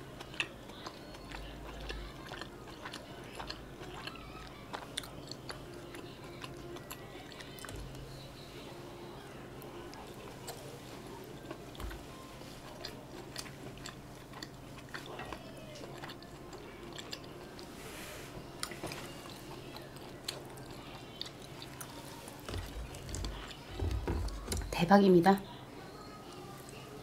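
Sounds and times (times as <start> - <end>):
chewing and biting dumpling: 0.0 - 8.4, 9.0 - 17.8, 18.5 - 24.6.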